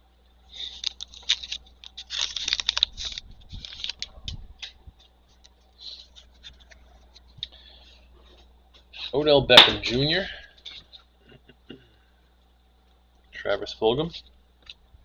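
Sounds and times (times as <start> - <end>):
card wrapper crinkling and rustling: 0.5 - 7.4.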